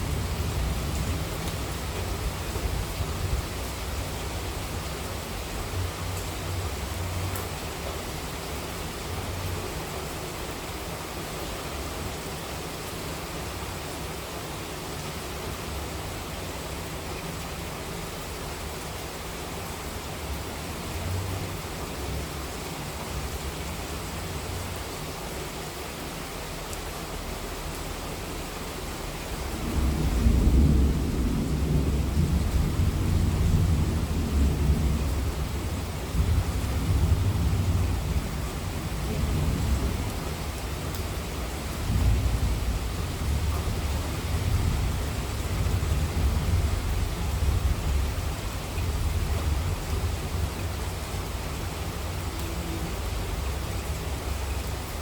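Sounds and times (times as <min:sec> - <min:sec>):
heavy rain hiss: 0:00.0 - 0:55.0
rolling thunder rumble: 0:29.4 - 0:54.8.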